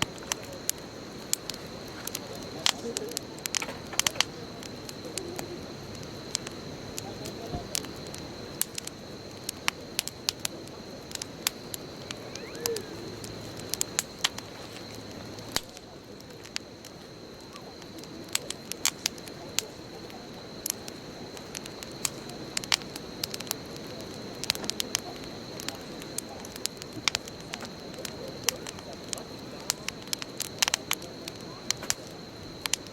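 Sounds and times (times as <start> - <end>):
bonfire crackling: 0.0 - 32.9
hiss of flames: 0.0 - 32.9.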